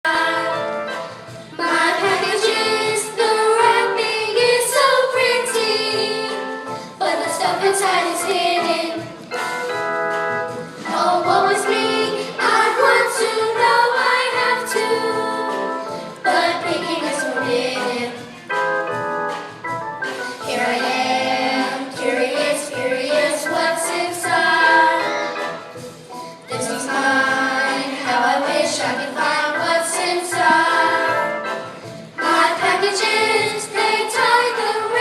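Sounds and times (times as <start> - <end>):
held accompaniment chords: 0.1 - 35.0
voices singing show tune: 10.8 - 18.4, 20.4 - 25.6, 26.2 - 31.6.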